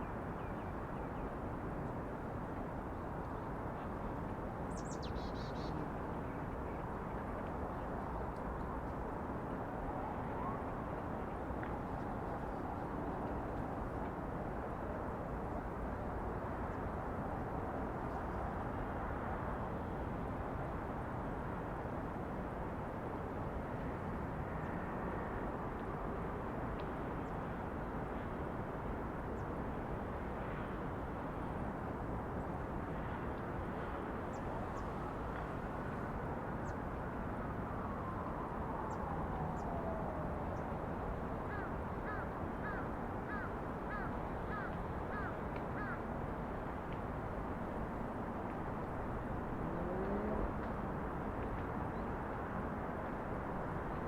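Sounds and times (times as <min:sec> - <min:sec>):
distant city traffic hum: 0:00.0 - 0:54.0
faint passing engine: 0:48.9 - 0:51.0.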